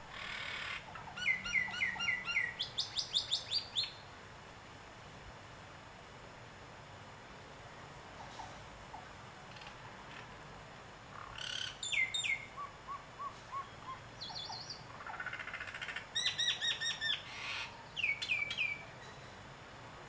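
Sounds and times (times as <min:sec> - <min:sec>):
birds calling: 0:00.0 - 0:04.0, 0:11.1 - 0:19.3
faint background hiss: 0:00.0 - 0:20.0.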